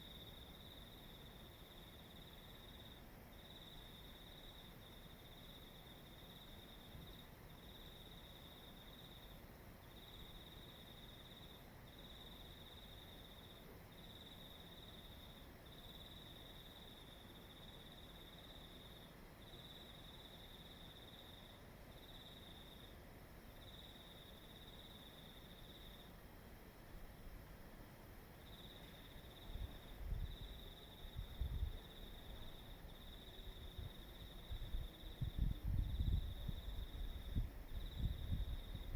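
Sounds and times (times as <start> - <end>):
crickets trilling: 28.4 - 38.9
faint low rumble: 28.7 - 38.9.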